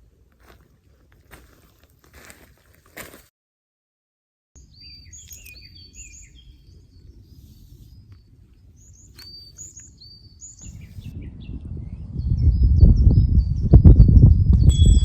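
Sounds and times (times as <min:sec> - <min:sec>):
songbird chirping: 0:04.6 - 0:13.2.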